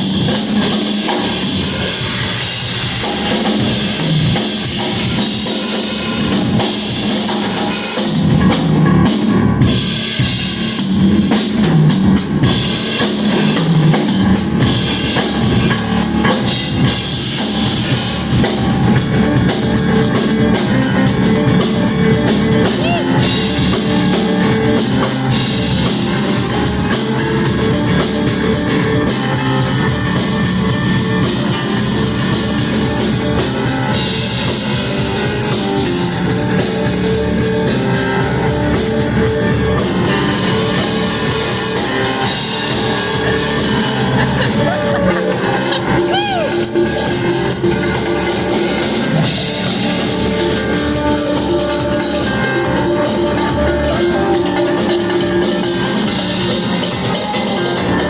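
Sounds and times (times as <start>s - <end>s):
drum kit: 0.0s - 58.0s
rock band playing live: 0.0s - 58.0s
electric guitar: 12.2s - 58.0s.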